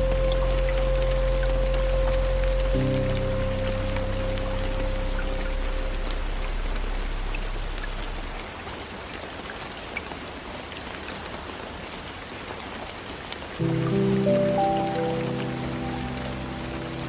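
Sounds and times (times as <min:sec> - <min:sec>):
raindrops ticking on glass: 0:00.0 - 0:08.1
low music drone: 0:00.0 - 0:08.5, 0:13.6 - 0:17.0
rain hissing on window: 0:00.0 - 0:17.0.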